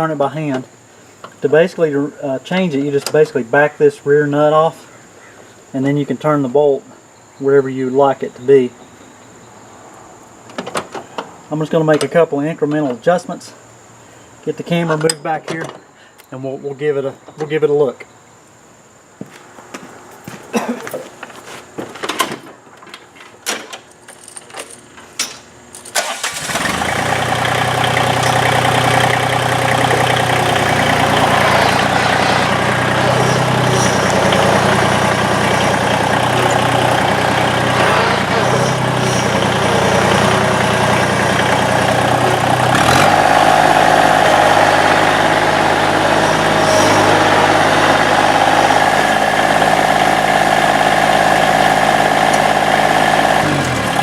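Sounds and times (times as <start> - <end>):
tractor diesel engine running: 26.0 - 54.0.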